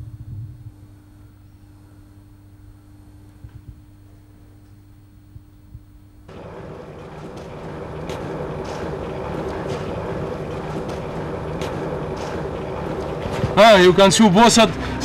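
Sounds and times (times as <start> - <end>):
room hum: 0.0 - 15.0
vehicle engine running: 6.3 - 15.0.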